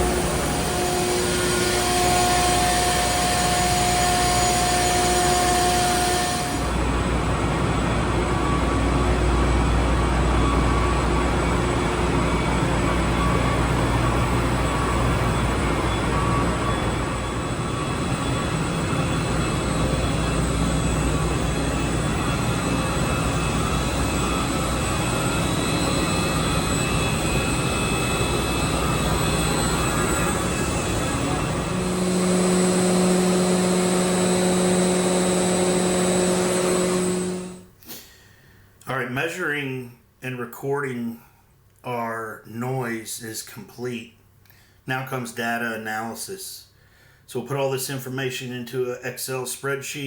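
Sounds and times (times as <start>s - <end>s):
deep machinery rumble: 0.0s - 37.6s
industrial machinery noise: 0.0s - 37.7s.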